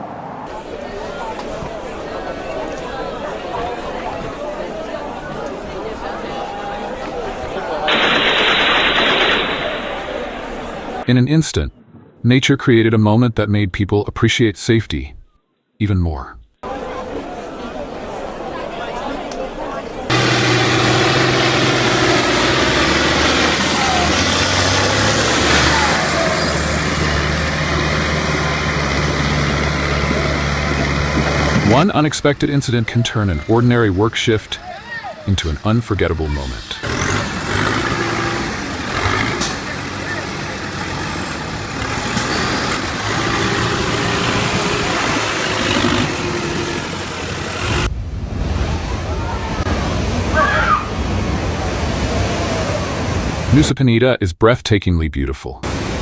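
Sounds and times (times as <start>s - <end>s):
heavy vehicle rushing: 0.0s - 12.3s, 20.0s - 53.6s
loud rushing noise: 7.8s - 12.3s, 36.6s - 53.6s
vehicle engine running: 20.1s - 31.8s, 36.8s - 47.9s.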